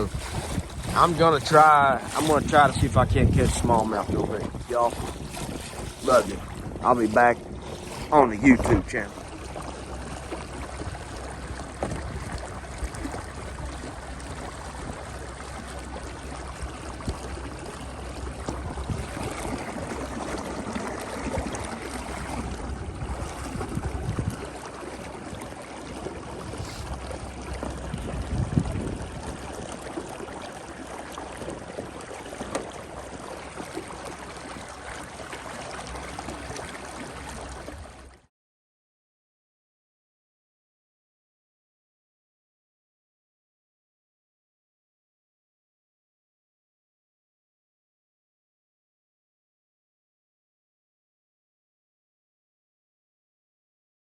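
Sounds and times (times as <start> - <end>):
wind on microphone: 0.0 - 32.8
water splashing against kayak hull: 0.0 - 38.3.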